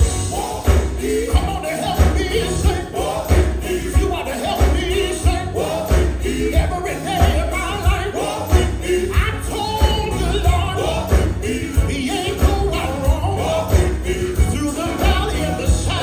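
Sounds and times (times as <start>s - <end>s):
gospel singers with band: 0.0s - 16.0s
jingling percussion: 0.0s - 16.0s.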